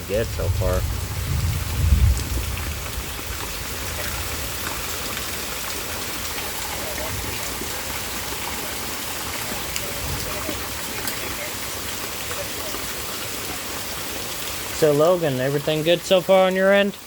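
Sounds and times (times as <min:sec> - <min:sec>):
low thunder rumble: 0:00.0 - 0:06.0
rain falling: 0:00.0 - 0:17.0.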